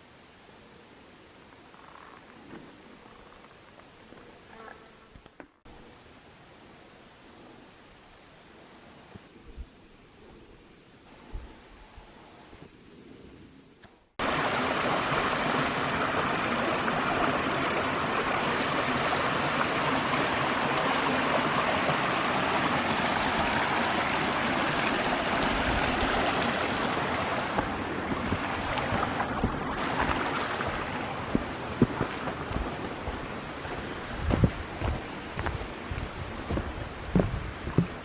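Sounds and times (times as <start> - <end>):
stream water rushing: 14.2 - 38.0.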